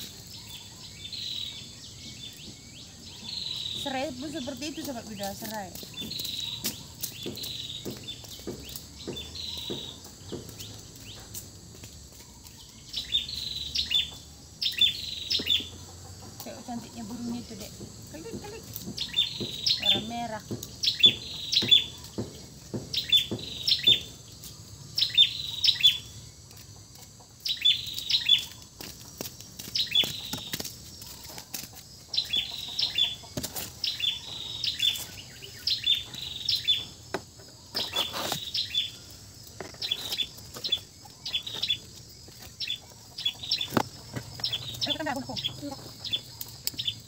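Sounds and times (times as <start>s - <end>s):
songbird chirping: 0.0s - 47.0s.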